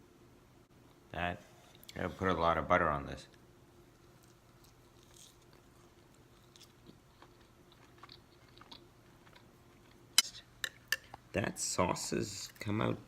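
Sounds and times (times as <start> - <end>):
person chewing: 4.0 - 11.2.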